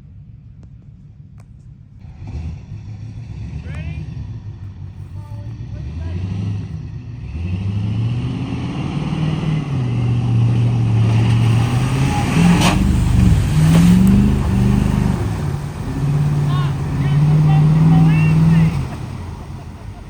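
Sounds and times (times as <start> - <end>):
engine revving: 2.0 - 20.0
rushing noise: 8.6 - 20.0.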